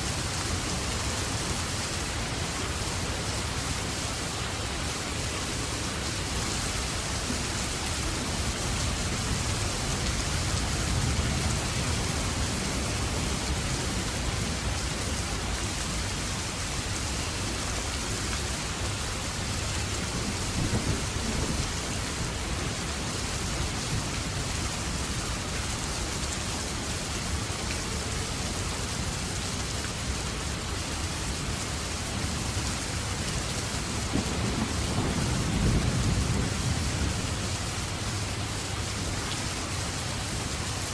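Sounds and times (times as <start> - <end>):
heavy rain: 0.0 - 40.9
thunder rumbling: 33.9 - 37.7.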